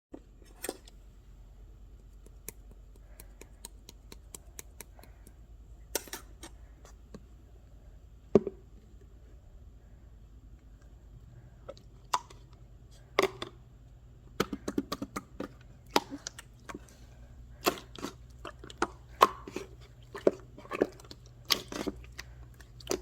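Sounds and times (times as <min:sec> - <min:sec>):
faint steady hum: 0:00.1 - 0:23.0
small clicks and taps: 0:02.1 - 0:05.4.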